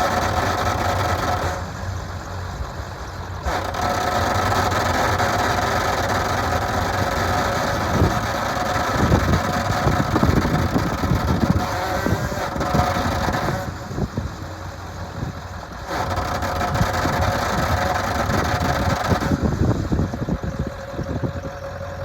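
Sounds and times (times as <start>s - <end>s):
diesel engine idling: 0.0s - 22.0s
uneven low rumbling: 7.6s - 22.0s.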